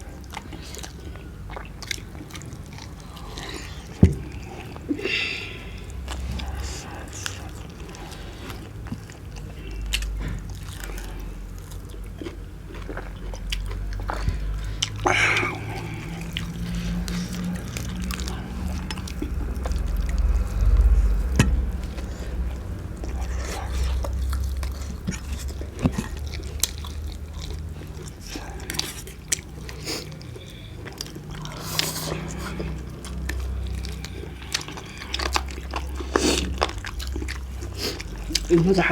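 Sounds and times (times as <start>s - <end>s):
chewing and biting chicken: 0.0s - 38.9s.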